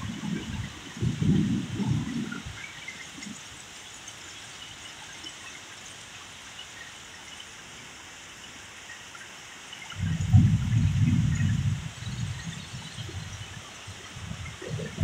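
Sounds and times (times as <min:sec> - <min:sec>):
heavy rain hiss: 0:00.0 - 0:15.0
nearby raindrops: 0:09.1 - 0:15.0.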